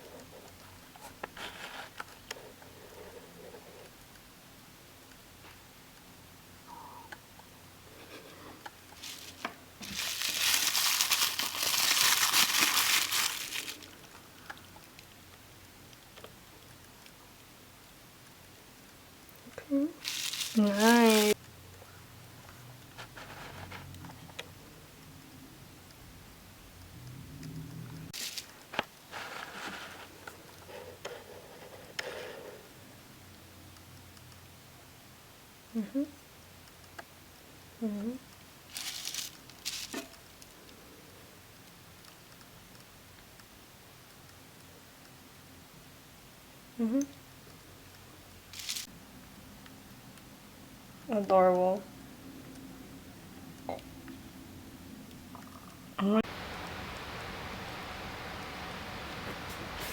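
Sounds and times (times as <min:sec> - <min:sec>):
packaging crinkling: 0:09.0 - 0:14.2, 0:20.0 - 0:21.4, 0:28.2 - 0:28.6, 0:38.7 - 0:40.2, 0:48.5 - 0:48.9.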